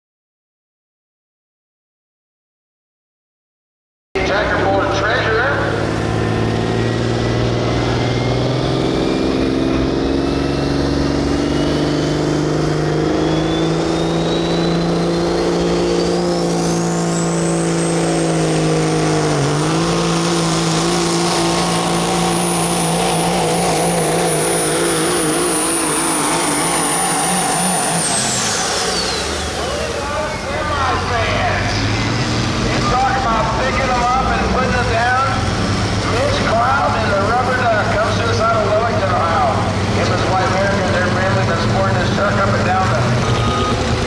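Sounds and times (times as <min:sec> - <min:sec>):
diesel truck engine under load: 0:04.2 - 0:44.0
high whine: 0:11.5 - 0:35.4.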